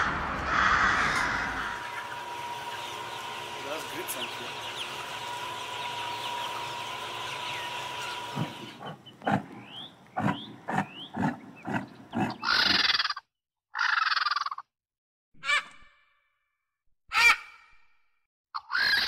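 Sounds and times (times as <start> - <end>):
chicken shed hum: 0.0 - 12.9
chicks peeping faintly: 1.3 - 12.7.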